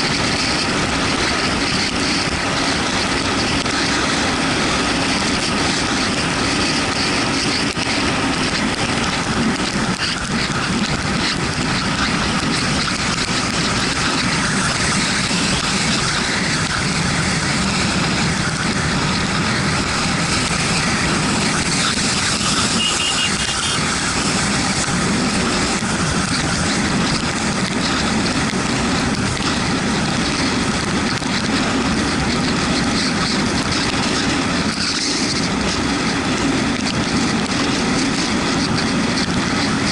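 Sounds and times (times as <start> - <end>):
motorcycle engine running: 0.0 - 39.9
rush of wind and road noise: 0.0 - 39.9.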